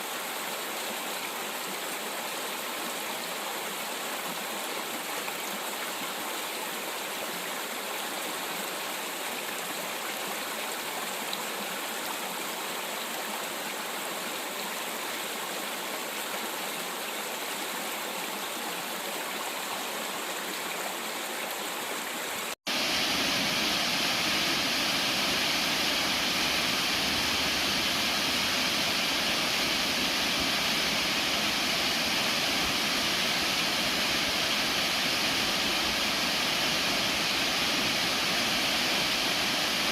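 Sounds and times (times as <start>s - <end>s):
stream rushing over rocks: 0.0s - 39.9s
waterfall roaring: 22.7s - 39.9s.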